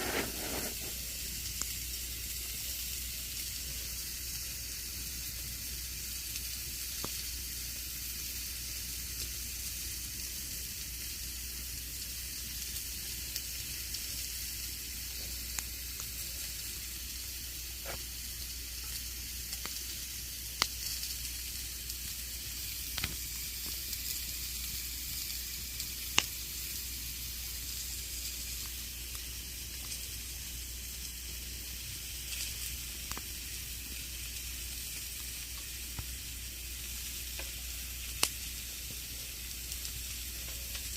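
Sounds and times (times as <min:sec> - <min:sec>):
campfire crackling with pops: 0:00.0 - 0:03.6, 0:06.2 - 0:09.4, 0:11.0 - 0:40.9.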